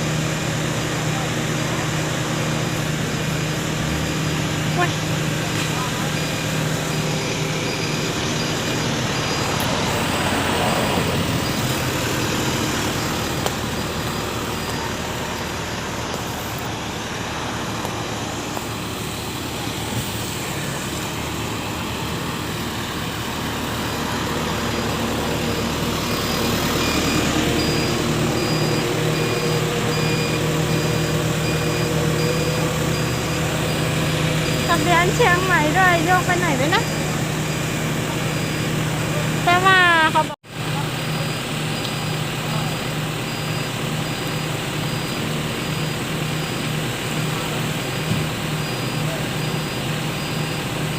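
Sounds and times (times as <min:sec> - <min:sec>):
truck engine running: 0:00.0 - 0:50.9
faint high-pitched beeping: 0:03.6 - 0:16.4, 0:23.3 - 0:40.4.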